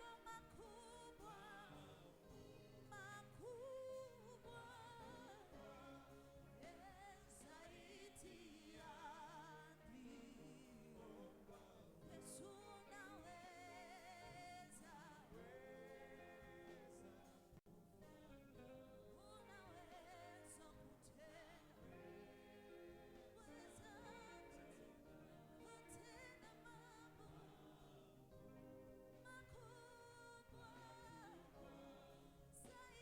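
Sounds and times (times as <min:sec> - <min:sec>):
faint worship singing: 0:00.0 - 0:33.0.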